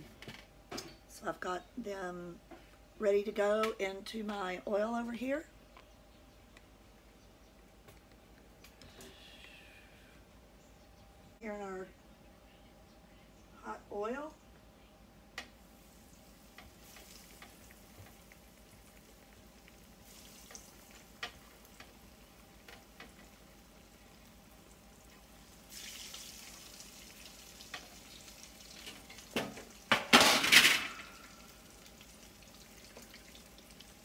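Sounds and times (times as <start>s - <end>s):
slices frying with sizzle and pops: 15.4s - 30.1s, 31.0s - 34.0s.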